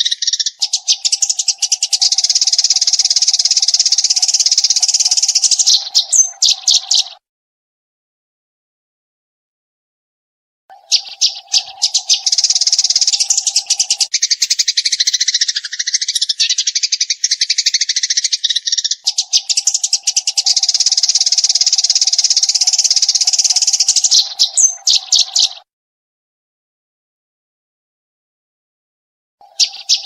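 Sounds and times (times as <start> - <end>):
sparrow chirping rapidly: 0.0 - 7.2, 10.7 - 25.7, 29.4 - 30.0.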